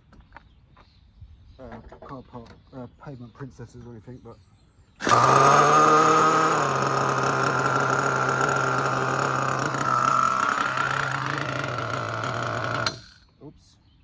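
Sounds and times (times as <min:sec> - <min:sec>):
small nitro engine running: 0:05.0 - 0:13.2.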